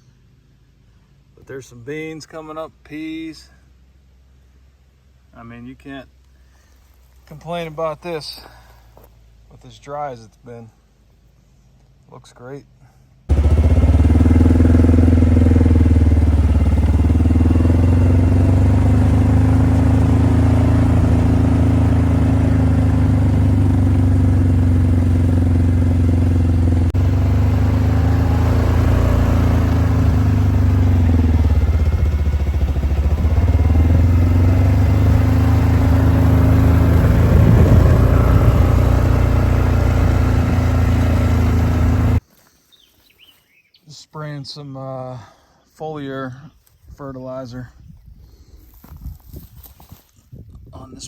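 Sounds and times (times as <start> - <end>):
vehicle engine running: 13.3 - 42.2.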